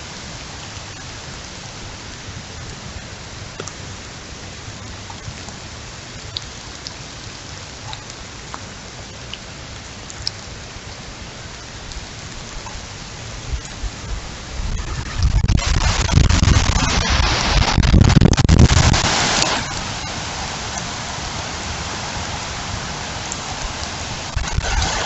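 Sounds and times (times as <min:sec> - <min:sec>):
heavy rain falling: 0:00.0 - 0:25.0
sharp raindrop ticks: 0:03.5 - 0:03.9, 0:04.8 - 0:21.0, 0:22.1 - 0:25.0.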